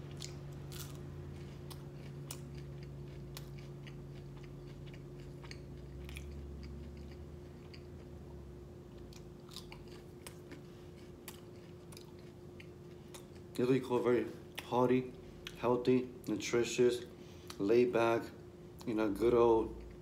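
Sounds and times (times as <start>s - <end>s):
man chewing food: 0.0s - 13.7s, 14.4s - 15.6s, 17.0s - 17.7s, 19.7s - 20.0s
steady low hum: 0.0s - 20.0s.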